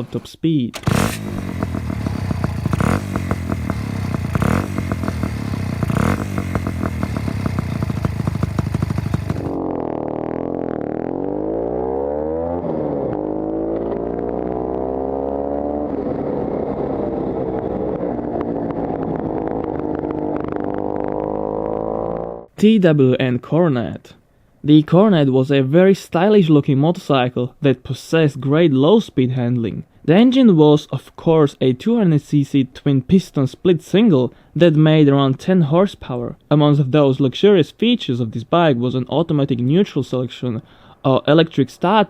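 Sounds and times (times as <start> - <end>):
two-stroke motorcycle engine: 0.8 - 11.9, 16.1 - 22.4.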